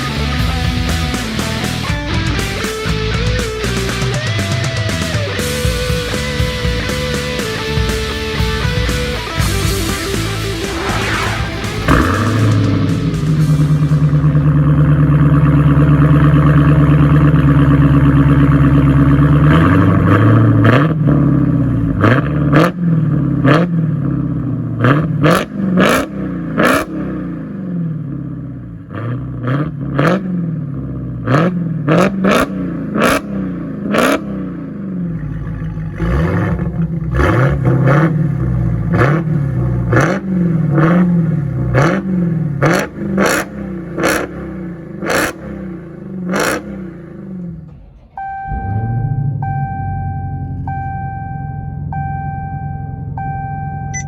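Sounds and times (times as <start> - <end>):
exhaust cracking: 0.0 - 27.6, 28.5 - 51.2
car engine revving: 0.0 - 54.0.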